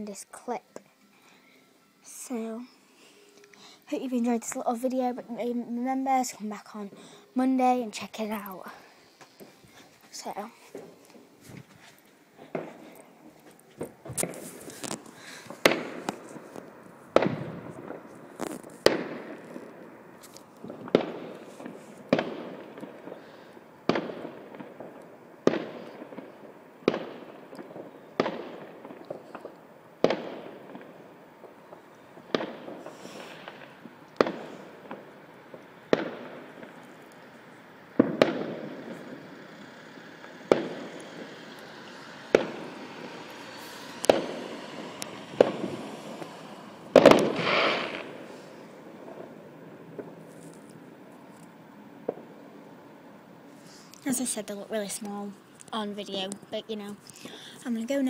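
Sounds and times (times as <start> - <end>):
fireworks banging with echo: 12.4 - 13.1, 13.8 - 20.0, 20.6 - 23.3, 23.9 - 37.3, 37.9 - 50.2.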